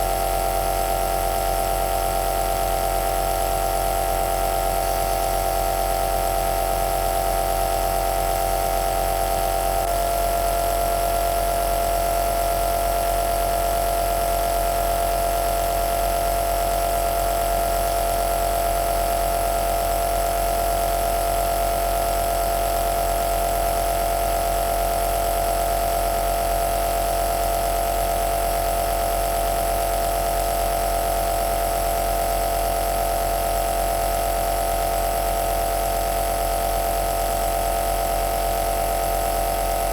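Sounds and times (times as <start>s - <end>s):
nebulizer motor and pump hum: 0.0s - 39.9s.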